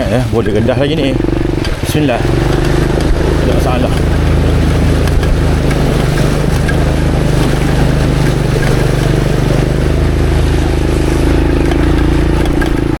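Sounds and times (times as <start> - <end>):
motorcycle engine running: 0.0 - 13.0
water splashing: 0.0 - 13.0.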